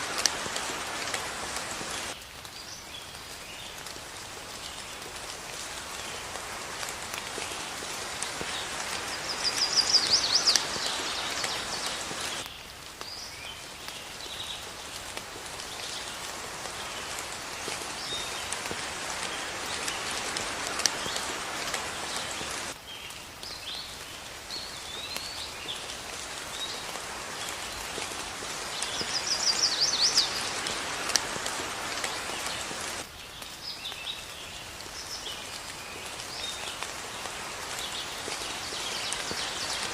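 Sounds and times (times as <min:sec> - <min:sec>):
steady rain: 0:00.0 - 0:39.9
birds chirping: 0:07.4 - 0:12.5, 0:27.4 - 0:33.0.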